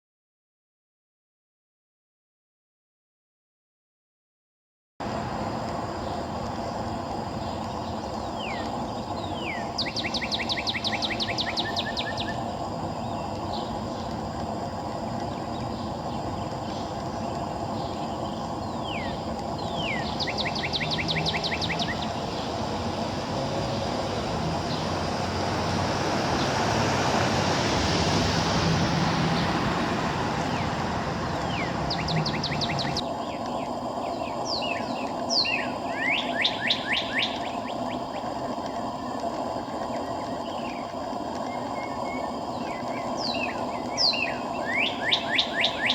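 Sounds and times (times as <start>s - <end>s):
distant traffic hum: 5.0s - 45.9s
songbird singing with trills: 5.8s - 27.0s, 28.5s - 45.9s
vehicle passing: 19.3s - 33.0s.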